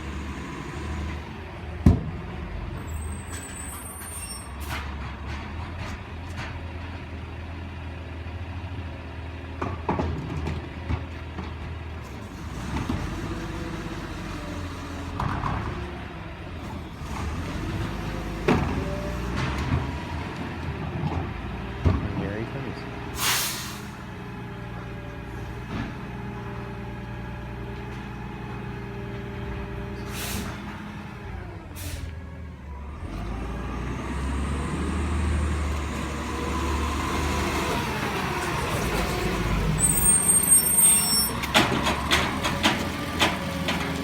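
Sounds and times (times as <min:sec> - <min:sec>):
garbage truck engine: 0:00.0 - 0:44.0
air brake hisses: 0:23.2 - 0:24.1, 0:30.0 - 0:30.6, 0:31.8 - 0:32.1
loud clattering knocks: 0:41.4 - 0:44.0.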